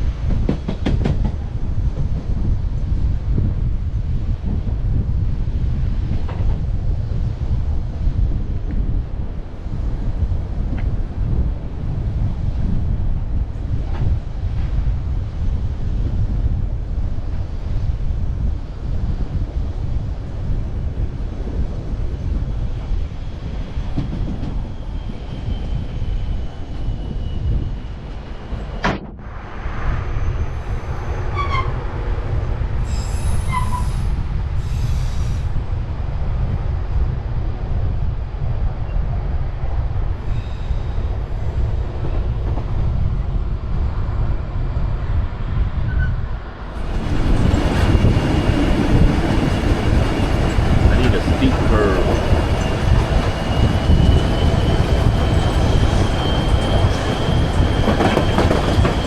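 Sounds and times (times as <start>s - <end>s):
train wheels rumbling on rails: 0.0s - 59.0s
wheel squeals: 31.0s - 31.8s, 32.9s - 34.1s, 52.1s - 59.0s.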